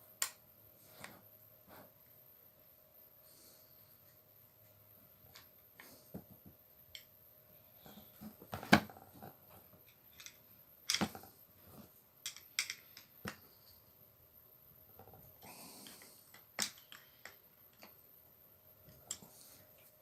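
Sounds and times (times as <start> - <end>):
tools being handled clicking: 9.9 - 11.1, 12.2 - 13.4, 15.8 - 18.0.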